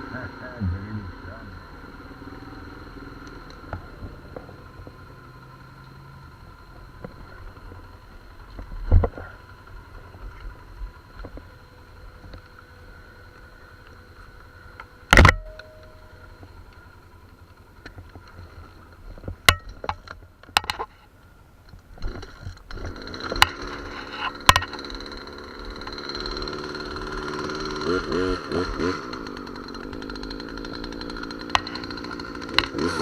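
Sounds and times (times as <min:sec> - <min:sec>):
atv engine idling: 0:00.0 - 0:20.5, 0:21.1 - 0:33.0.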